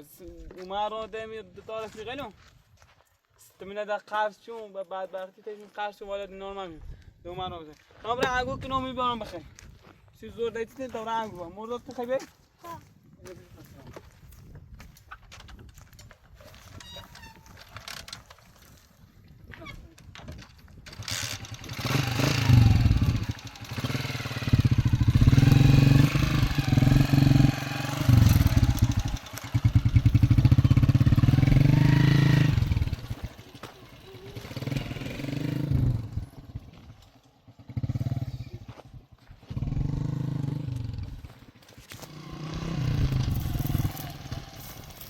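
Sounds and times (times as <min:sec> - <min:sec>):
motorcycle engine revving: 0:20.8 - 0:45.0.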